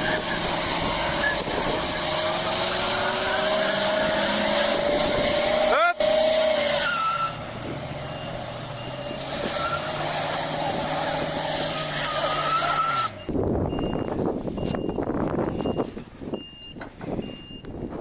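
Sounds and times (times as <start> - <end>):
heavy vehicle engine running: 0.0 - 17.9
engine whine: 0.0 - 18.0
reversing alarm beeps: 8.1 - 9.3, 13.2 - 17.7.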